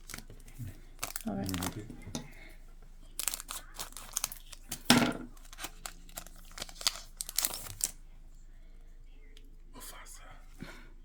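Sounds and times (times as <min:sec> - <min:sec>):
foil wrapper crinkling and tearing: 0:00.0 - 0:01.8, 0:03.1 - 0:08.0.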